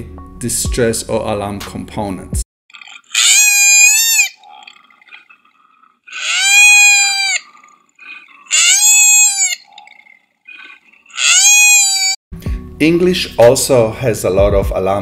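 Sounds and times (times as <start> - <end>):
koala wailing cries: 3.1 - 5.4, 6.1 - 12.2.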